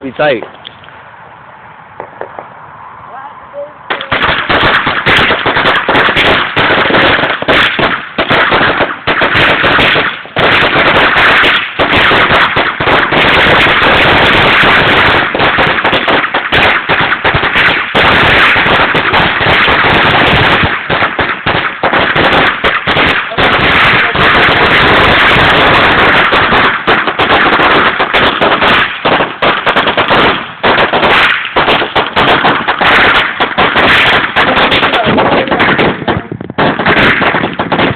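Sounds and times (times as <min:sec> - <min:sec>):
firecrackers going off: 0:03.9 - 0:37.9.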